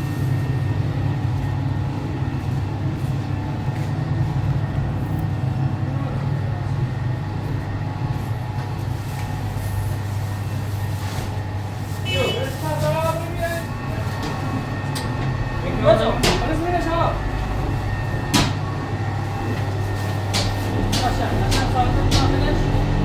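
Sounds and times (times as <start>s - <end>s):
engine humming: 11.7s - 23.0s.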